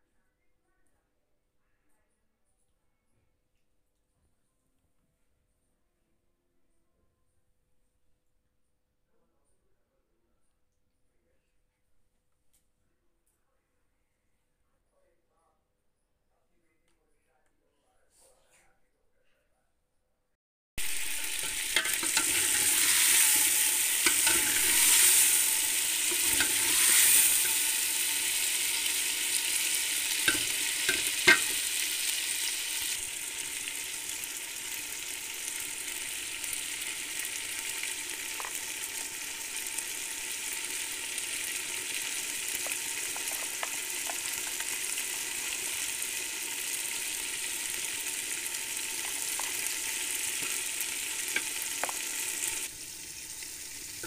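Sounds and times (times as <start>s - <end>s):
metal spoon clinking pot: 20.8s - 27.6s, 30.2s - 31.6s
chicken sizzling in a pot: 20.8s - 54.0s.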